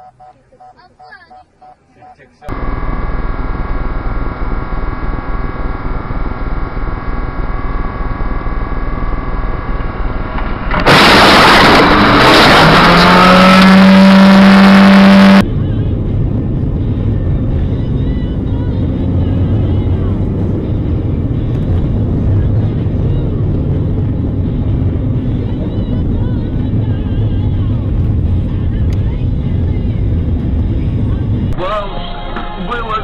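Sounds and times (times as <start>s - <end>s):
loud harsh rising noise: 2.5s - 15.5s
vehicle engine running: 2.5s - 31.8s.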